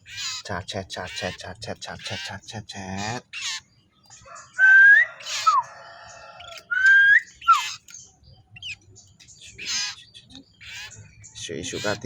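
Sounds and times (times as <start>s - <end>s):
bird whistling song: 4.2s - 12.0s
short falling raspy whistle: 4.6s - 5.6s, 6.7s - 7.6s.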